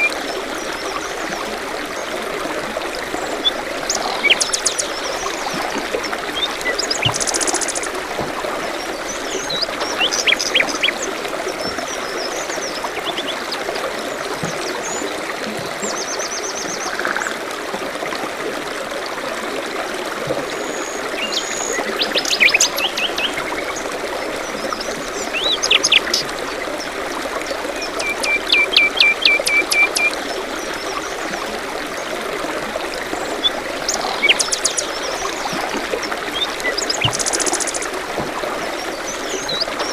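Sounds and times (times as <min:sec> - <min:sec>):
forest stream trickling: 0:00.0 - 0:39.9
songbirds chirping: 0:03.1 - 0:17.0.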